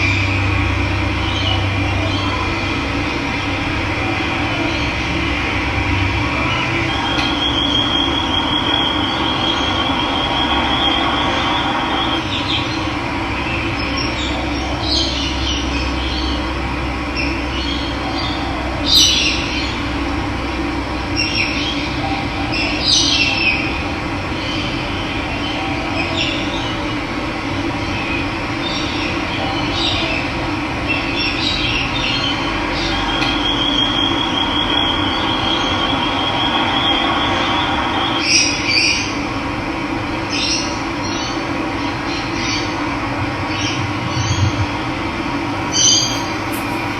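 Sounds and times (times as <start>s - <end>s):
birds chirping: 45.6s - 46.9s
high trilling tone: 45.6s - 46.9s.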